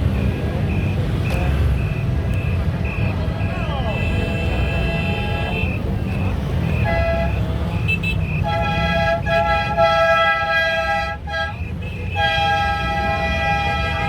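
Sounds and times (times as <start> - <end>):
horn blasts: 3.8 - 14.0.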